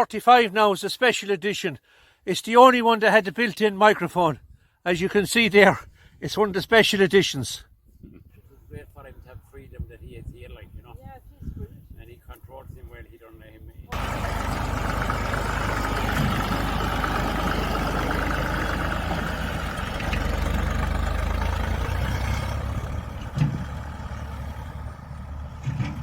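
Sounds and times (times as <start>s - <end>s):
tractor engine running: 13.9s - 26.0s
thump: 25.6s - 26.0s.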